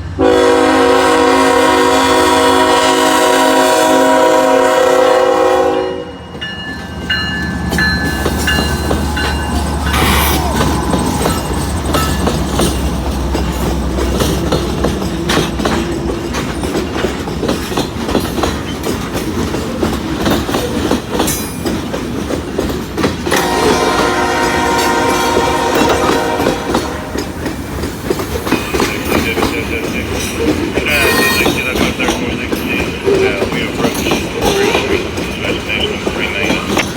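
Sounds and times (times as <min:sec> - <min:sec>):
train wheels clacking over rails: 0:00.0 - 0:36.9
locomotive horn: 0:00.2 - 0:06.2, 0:09.2 - 0:12.1, 0:23.3 - 0:27.3, 0:30.8 - 0:36.8.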